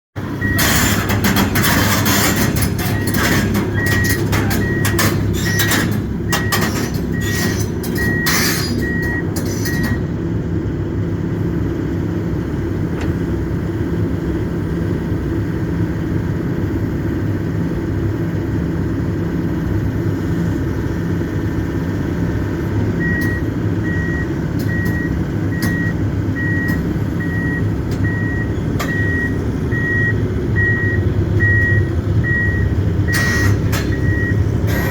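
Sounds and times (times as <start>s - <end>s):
diesel engine running: 0.2s - 34.9s
metal clanks and knocks: 0.4s - 9.7s
high-pitched travel alarm beeps: 2.8s - 10.1s, 23.0s - 34.5s.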